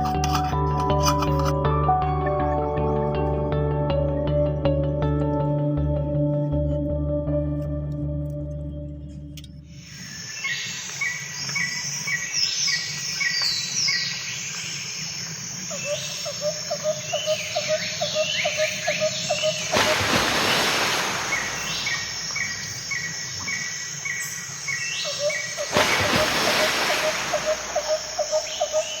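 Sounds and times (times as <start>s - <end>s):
birds chirping and whistling: 15.7s - 29.0s
low repeating bird note: 26.0s - 29.0s.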